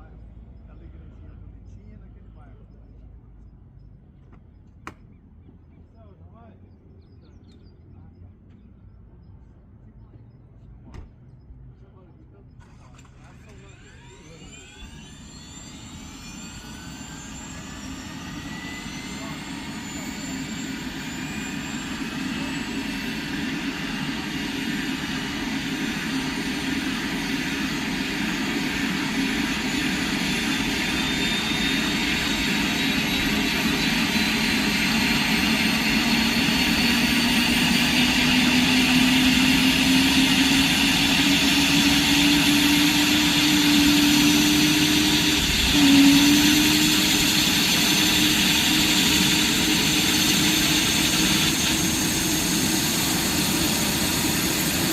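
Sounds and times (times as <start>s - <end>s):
helicopter low drone: 0.0s - 54.9s
helicopter turbine whine: 0.0s - 54.9s.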